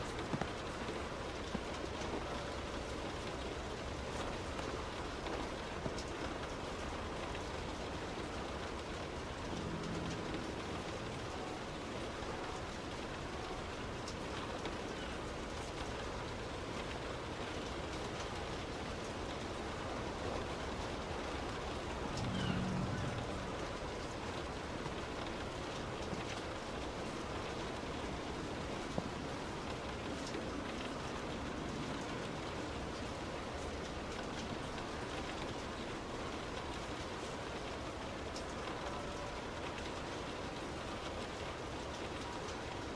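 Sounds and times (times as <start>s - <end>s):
road noise: 0.0s - 14.6s, 15.3s - 39.3s
heavy rain on a car: 0.0s - 42.9s
low hum: 8.9s - 13.4s, 20.9s - 29.9s.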